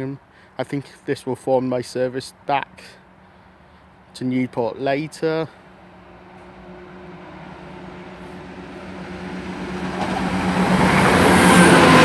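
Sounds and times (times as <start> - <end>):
diesel train engine drone: 5.1 - 12.0
train wheel and rail noise: 5.9 - 12.0.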